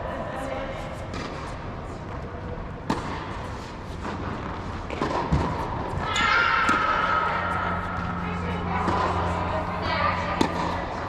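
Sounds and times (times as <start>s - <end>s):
racquet hitting tennis ball: 1.1s - 1.6s, 2.8s - 11.0s.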